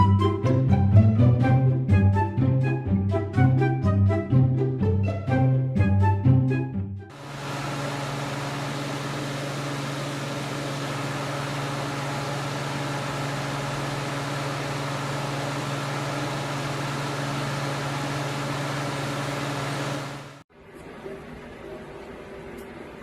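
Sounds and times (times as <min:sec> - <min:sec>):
machine humming and hissing: 0:07.1 - 0:20.4.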